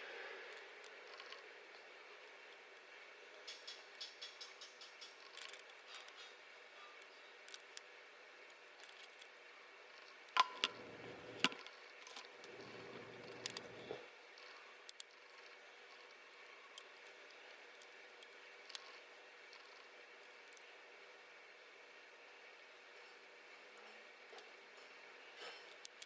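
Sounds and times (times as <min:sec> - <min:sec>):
small tool clicks and taps: 0:03.4 - 0:06.2, 0:10.4 - 0:11.7.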